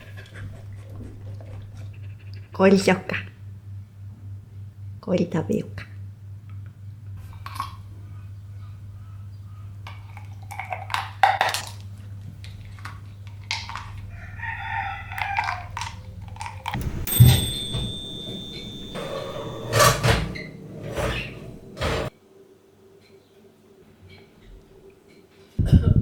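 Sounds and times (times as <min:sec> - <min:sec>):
rooster crowing: 0:14.1 - 0:15.7
knocks and clinks: 0:16.7 - 0:22.1.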